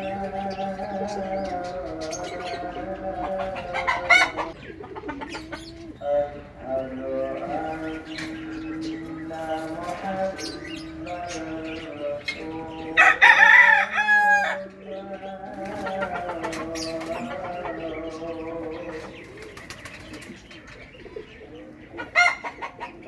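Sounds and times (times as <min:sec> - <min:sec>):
birds calling: 0:00.0 - 0:23.0
rooster crowing: 0:12.8 - 0:14.7.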